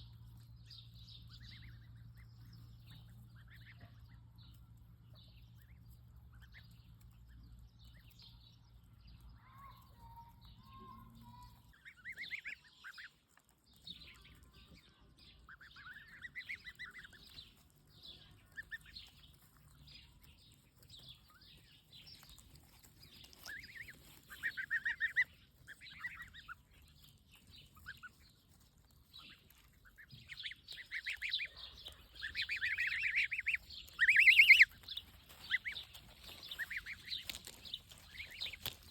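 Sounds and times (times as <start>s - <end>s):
geese honking: 30.2s - 34.8s.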